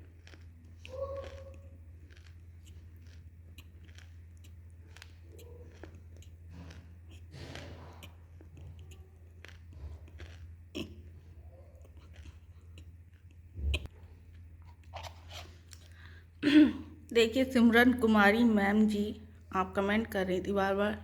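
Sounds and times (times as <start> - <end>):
mouth clicks and lip smacks: 0.0 - 11.1, 11.8 - 13.9
wet chewing: 0.0 - 16.3
low electrical hum: 0.0 - 21.0.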